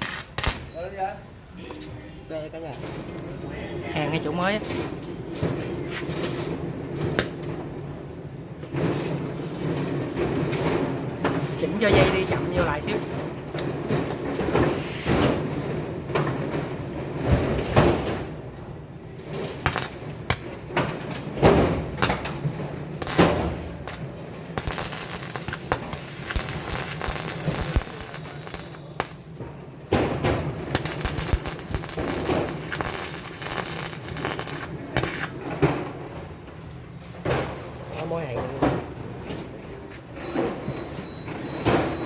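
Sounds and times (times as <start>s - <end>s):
welding arc crackling: 0.0s - 0.7s, 11.6s - 14.6s, 19.2s - 29.4s, 30.6s - 35.4s.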